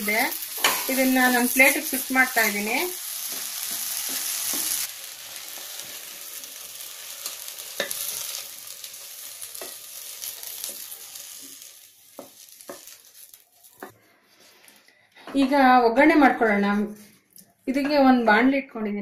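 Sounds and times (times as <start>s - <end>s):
okra sizzling in oil: 0.0s - 14.8s
spatula scraping a pan: 7.2s - 14.9s.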